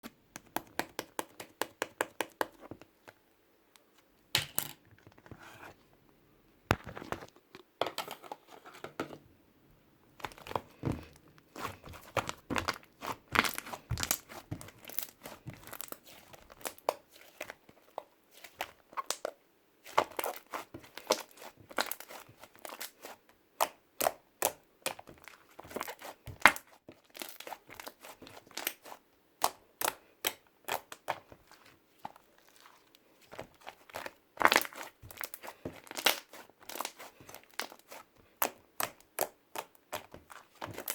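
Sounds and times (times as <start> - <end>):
slime squished by hand: 10.2 - 17.6, 18.4 - 40.9.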